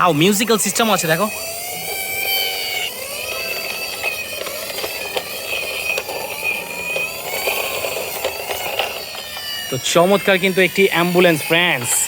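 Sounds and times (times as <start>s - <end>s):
wavering synthetic toy siren tone: 0.0s - 12.0s
plastic toy clicks: 1.7s - 9.8s.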